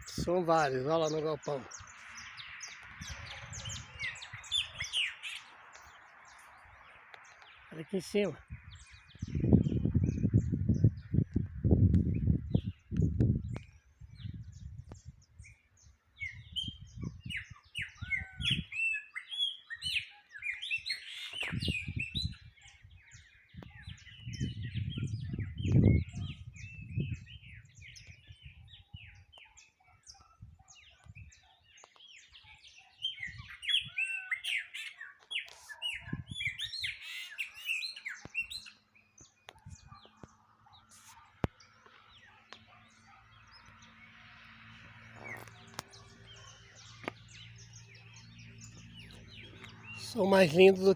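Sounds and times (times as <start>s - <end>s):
songbirds chirping and singing: 0.0s - 50.9s
low microphone rumbles: 8.4s - 15.3s, 23.6s - 28.7s.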